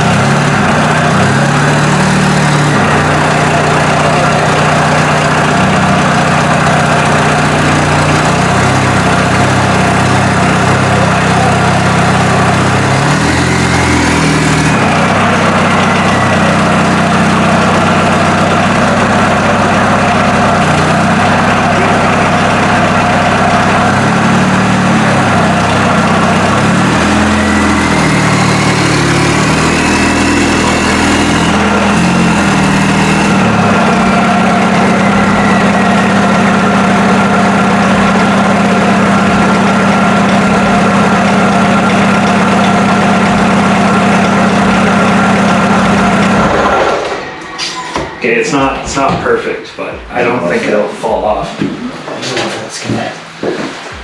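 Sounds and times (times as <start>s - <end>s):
diesel car engine revving: 0.0s - 54.0s
faint rising whistle: 27.6s - 49.0s.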